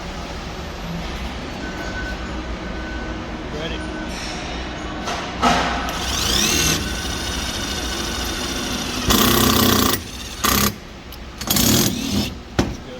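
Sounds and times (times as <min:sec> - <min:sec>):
impact driver driving screw: 0:05.9 - 0:10.8, 0:11.4 - 0:12.4.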